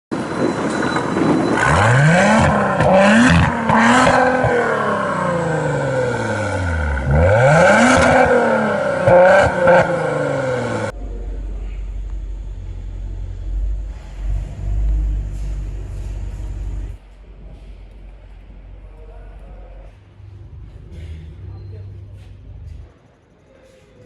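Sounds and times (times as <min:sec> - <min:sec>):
sports car engine accelerating: 0:01.6 - 0:17.0.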